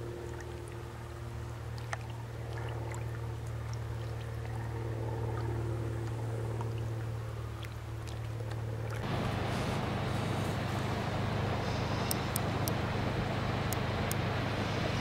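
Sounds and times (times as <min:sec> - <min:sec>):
boat engine drone: 0:00.0 - 0:15.0
light water sounds: 0:00.0 - 0:15.0.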